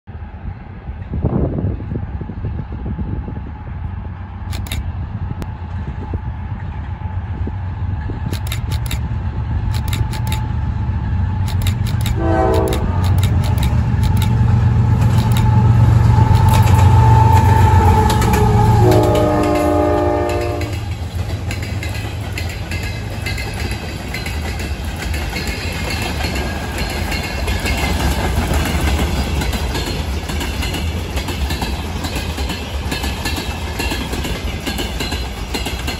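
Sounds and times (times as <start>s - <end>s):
diesel locomotive rumbling: 0.1s - 35.9s
wheels clicking over rail joints: 4.5s - 4.8s, 8.2s - 9.1s, 9.7s - 10.5s, 11.4s - 35.9s
train air horn blasts: 12.0s - 13.3s, 15.4s - 20.9s.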